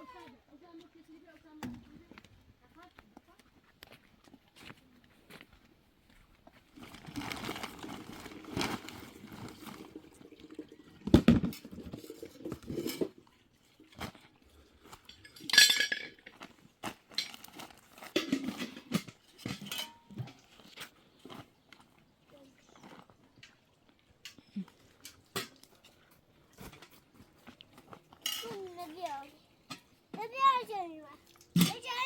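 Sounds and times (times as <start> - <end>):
dishes and cutlery clinking: 11.4 - 13.2, 15.0 - 16.4, 18.1 - 20.8, 28.2 - 29.0.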